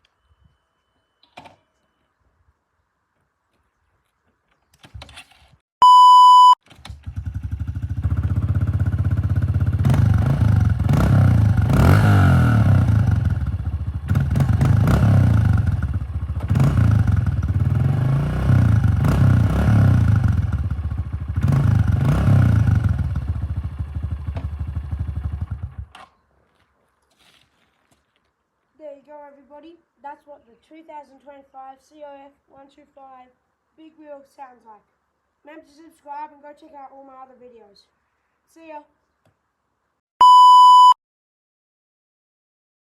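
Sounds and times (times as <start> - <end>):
loud electronic beep: 5.8 - 6.6, 40.2 - 41.0
dirt bike engine revving: 7.0 - 24.2.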